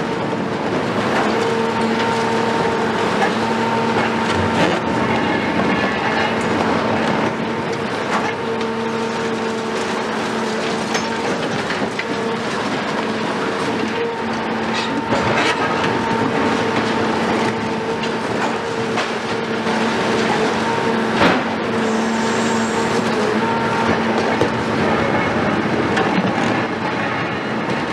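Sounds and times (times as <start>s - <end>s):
excavator diesel engine running: 0.0s - 27.9s.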